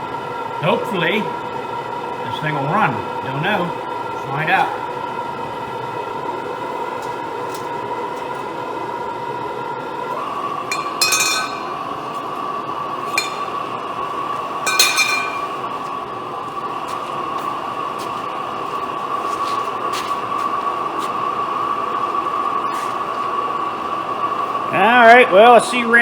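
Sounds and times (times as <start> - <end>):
gas burner hissing: 0.0 - 26.0
metallic clinks: 10.7 - 12.0, 13.1 - 13.8, 14.7 - 15.7.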